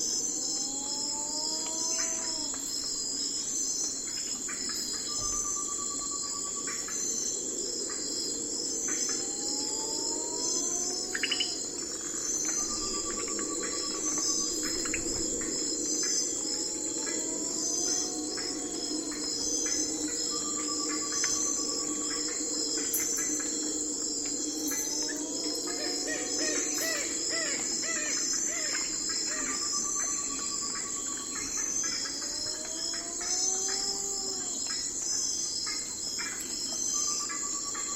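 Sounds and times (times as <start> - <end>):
crickets and insects chirping: 0.0 - 37.9
low steady hiss: 0.0 - 37.9
slow gliding whistle: 8.8 - 31.5.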